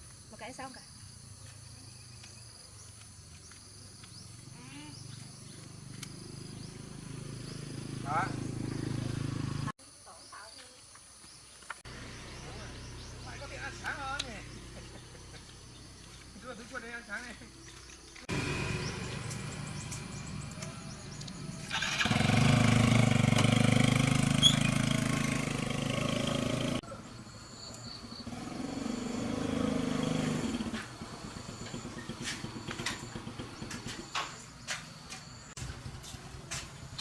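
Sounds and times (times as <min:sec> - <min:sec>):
vehicle engine running loudly: 0:18.3 - 0:26.8.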